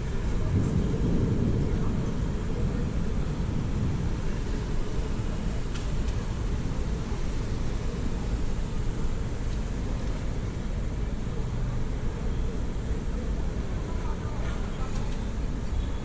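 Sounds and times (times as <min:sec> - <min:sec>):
rain: 0:00.0 - 0:16.0
wind: 0:00.0 - 0:16.0.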